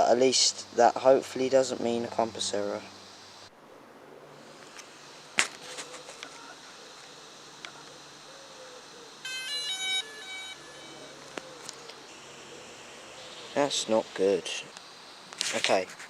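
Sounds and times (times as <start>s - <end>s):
electronic beep tune: 9.3s - 11.1s.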